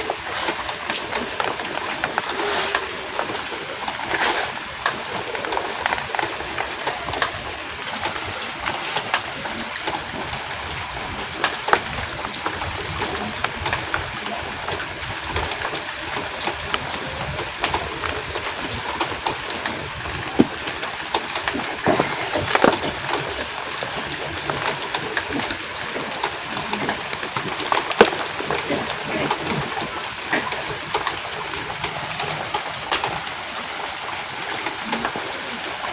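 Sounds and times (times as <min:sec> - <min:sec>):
rain hissing: 0:00.0 - 0:35.9
chalk blocks crunching: 0:19.0 - 0:30.8.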